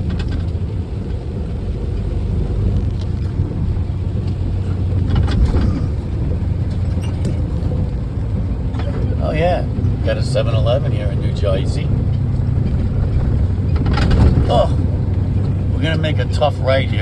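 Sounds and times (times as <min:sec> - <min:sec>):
light clicks or rattles: 0:00.0 - 0:09.2, 0:12.0 - 0:15.7
truck engine and road rumble: 0:00.0 - 0:17.0.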